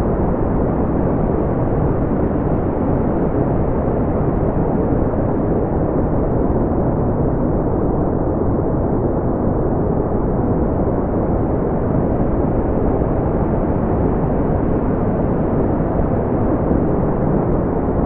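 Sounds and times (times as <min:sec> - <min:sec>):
brown noise rumble: 0:00.0 - 0:18.0.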